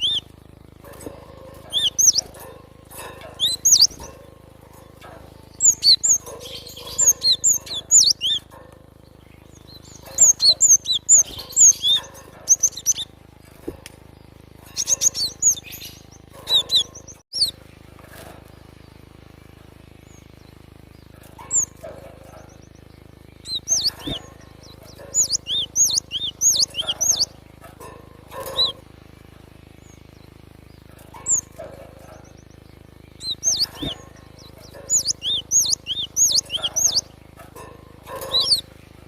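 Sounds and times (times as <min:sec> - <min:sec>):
bird singing whistled notes: 0:00.0 - 0:00.3, 0:01.7 - 0:02.4, 0:03.4 - 0:04.1, 0:05.5 - 0:08.5, 0:09.2 - 0:13.1, 0:23.4 - 0:27.3, 0:33.1 - 0:37.1.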